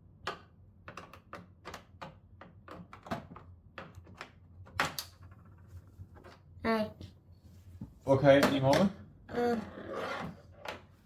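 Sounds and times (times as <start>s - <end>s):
clicks and taps on plastic case: 0.2s - 5.5s.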